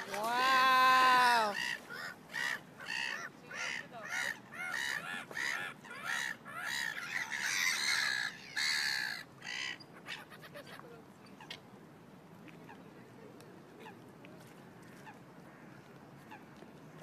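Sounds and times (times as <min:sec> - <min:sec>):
birds calling: 0:00.0 - 0:11.6.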